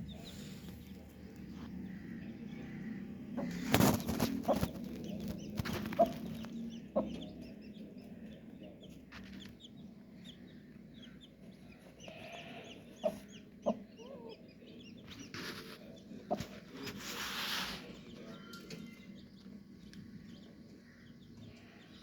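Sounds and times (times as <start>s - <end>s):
baby chicks peeping: 0.0s - 22.0s
hen clucking: 1.4s - 7.6s, 11.0s - 16.7s.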